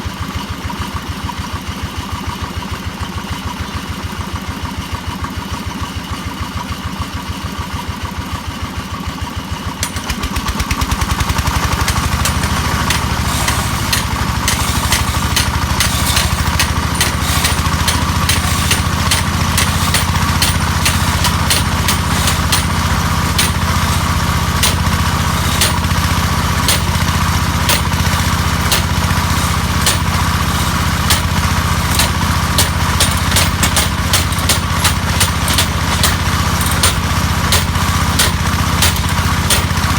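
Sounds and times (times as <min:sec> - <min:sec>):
hammer drill engine running: 0:09.8 - 0:39.9
sharp repeated knocks: 0:11.8 - 0:39.9.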